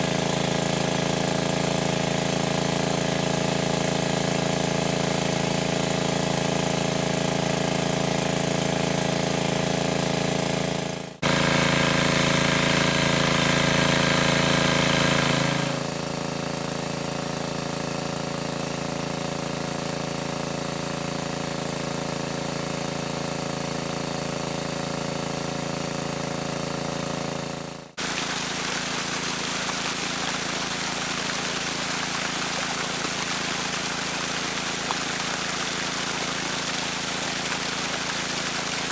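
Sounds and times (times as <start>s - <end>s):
small engine humming: 28.0s - 38.9s.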